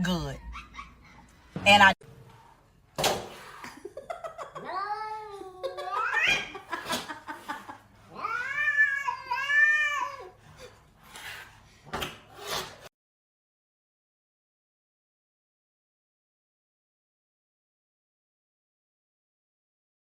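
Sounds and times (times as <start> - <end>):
cat yowling: 4.6 - 6.6, 8.1 - 10.3.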